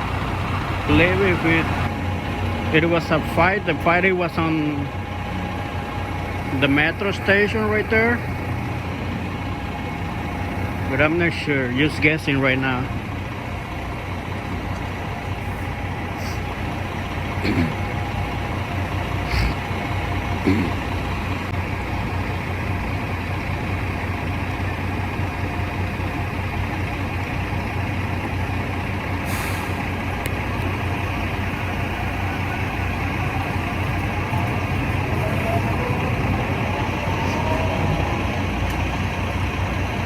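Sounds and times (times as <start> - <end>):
traffic rumble: 0.0 - 40.0
fast low pulsing: 31.4 - 40.0.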